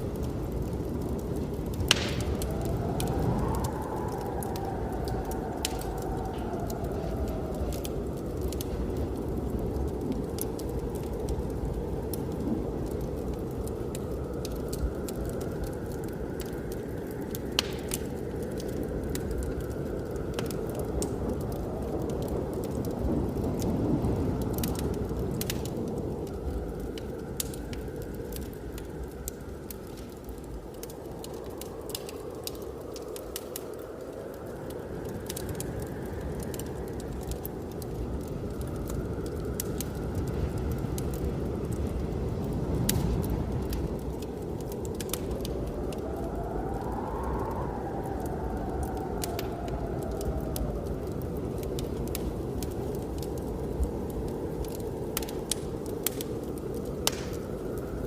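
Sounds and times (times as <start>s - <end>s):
blizzard wind rushing: 0.0s - 58.0s
wood fire crackling and popping: 0.0s - 58.0s.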